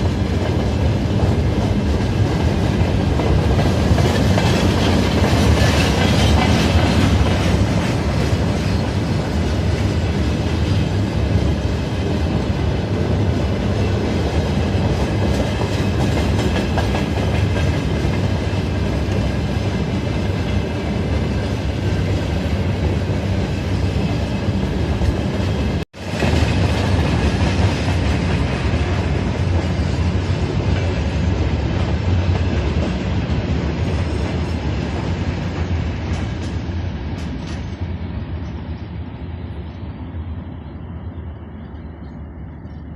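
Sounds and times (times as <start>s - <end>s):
wagon wheels clacking on track: 0.0s - 9.9s, 14.2s - 21.2s
diesel locomotive engine drone: 0.0s - 42.9s.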